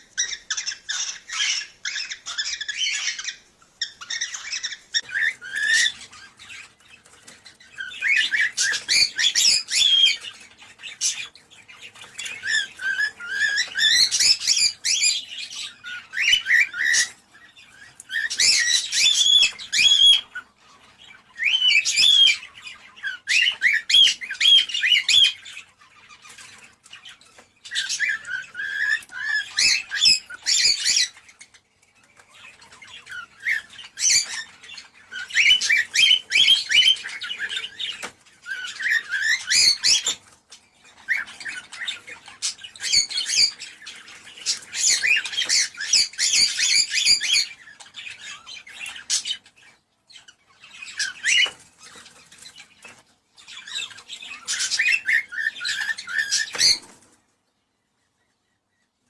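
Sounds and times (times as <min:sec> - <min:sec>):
cockatiels chirping and warbling: 0:00.0 - 0:59.0.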